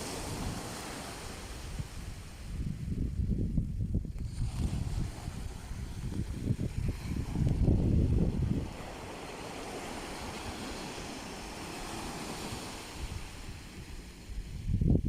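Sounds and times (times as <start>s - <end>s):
sea waves washing in: 0.0s - 2.9s, 4.1s - 14.8s
wind buffeting microphone: 0.0s - 15.0s.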